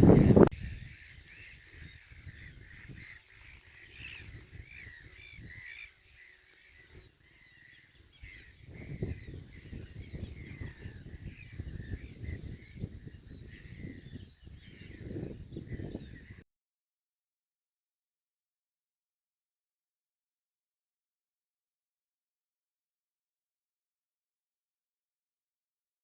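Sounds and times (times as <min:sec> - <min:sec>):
low uneven rumble: 0:00.0 - 0:00.5
wetland birds calling: 0:00.0 - 0:16.4.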